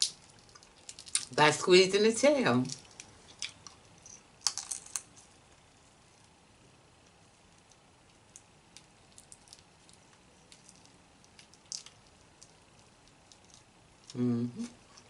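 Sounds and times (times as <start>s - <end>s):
wet clicks and crackles of eating shrimp: 0.0s - 1.4s, 2.6s - 5.2s, 7.0s - 14.2s.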